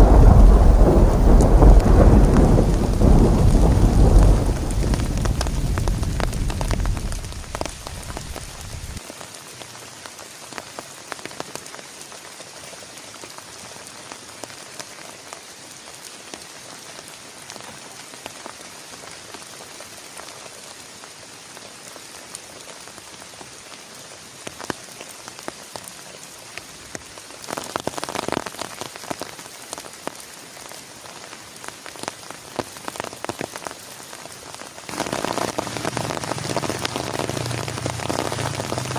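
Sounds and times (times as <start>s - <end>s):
raindrop taps: 0.0s - 9.0s, 34.9s - 38.9s
thunder rumble: 0.0s - 9.0s, 34.9s - 38.9s
heavy rain falling: 0.0s - 38.9s.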